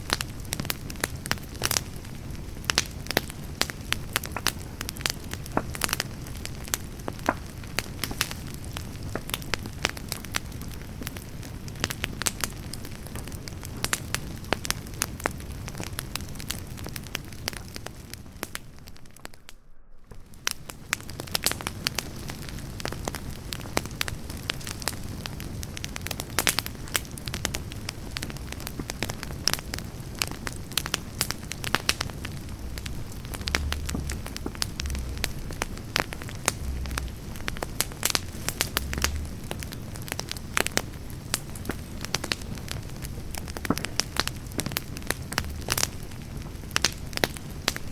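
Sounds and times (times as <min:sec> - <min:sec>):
campfire flames rushing: 0:00.0 - 0:47.9
logs crackling and popping: 0:00.0 - 0:47.9.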